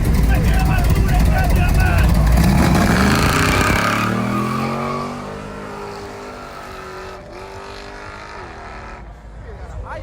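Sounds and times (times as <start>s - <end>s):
car engine revving and accelerating: 2.0s - 9.1s.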